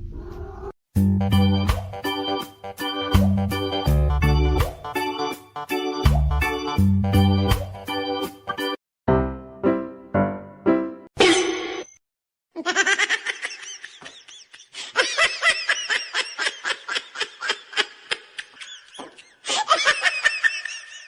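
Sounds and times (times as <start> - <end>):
high-pitched laughter: 12.6 - 21.0.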